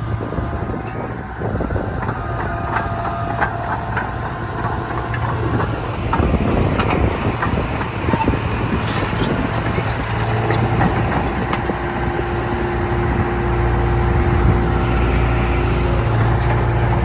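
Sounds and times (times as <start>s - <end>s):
diesel machinery engine hum: 0.0s - 17.0s
metallic clanks and clicks: 2.0s - 11.6s.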